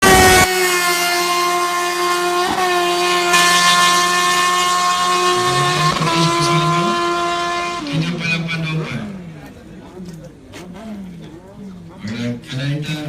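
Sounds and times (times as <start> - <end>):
lower engine note: 0.0 - 9.5
motorcycle engines at high revs: 0.0 - 9.6.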